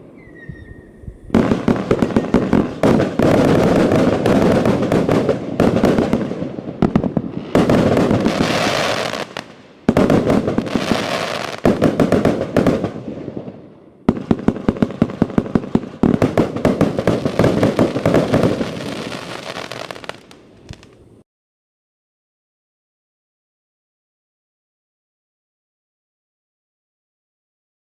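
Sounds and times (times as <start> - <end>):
crackling hiss of fireworks: 0.0 - 21.2.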